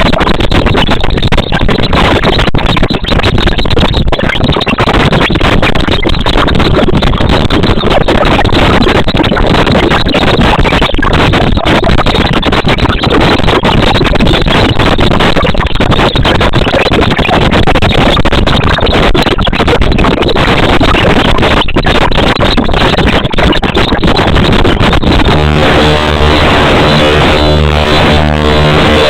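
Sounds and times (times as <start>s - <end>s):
loud steady rushing noise: 22.8s - 29.0s.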